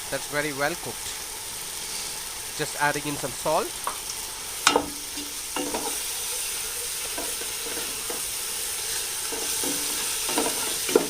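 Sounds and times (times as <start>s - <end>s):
paste sizzling in a pot: 0.0s - 11.0s
spoon scraping a pot: 4.7s - 6.0s, 7.0s - 11.0s.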